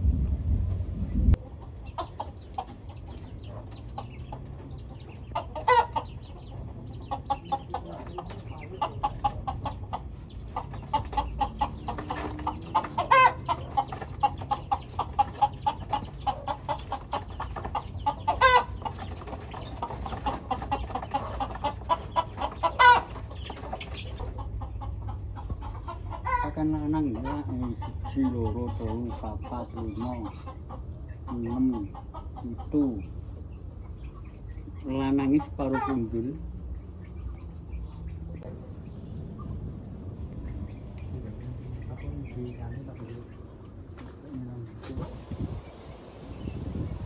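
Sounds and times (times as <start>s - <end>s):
low rumble: 0.0s - 1.7s
chickens clucking: 0.6s - 47.0s
chicken squawks: 5.3s - 6.2s, 8.7s - 19.0s, 19.8s - 32.8s, 35.3s - 36.2s.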